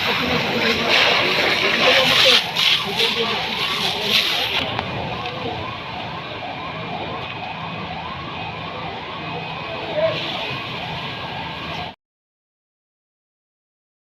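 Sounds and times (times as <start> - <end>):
siren wailing: 0.0 - 12.0.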